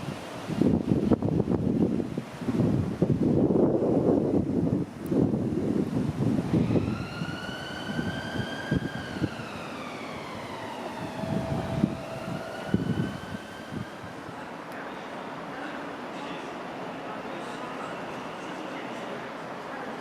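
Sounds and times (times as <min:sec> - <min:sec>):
train wheels rumbling: 0:06.2 - 0:20.0
train traction motors whining: 0:06.6 - 0:14.7.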